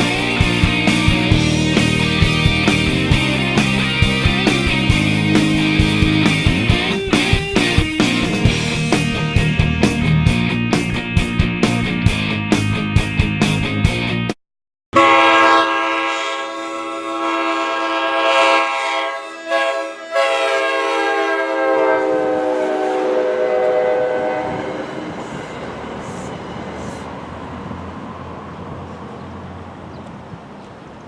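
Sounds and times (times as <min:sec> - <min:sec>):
train air horn chord: 0:00.0 - 0:06.1, 0:14.9 - 0:25.4
train rumble: 0:00.0 - 0:13.8, 0:17.2 - 0:31.0.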